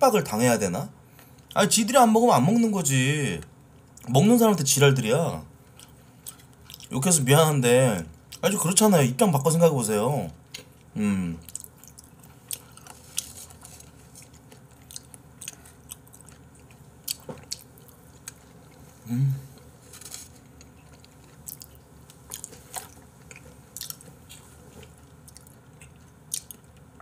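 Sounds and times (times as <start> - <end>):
person humming low: 19.0 - 19.6.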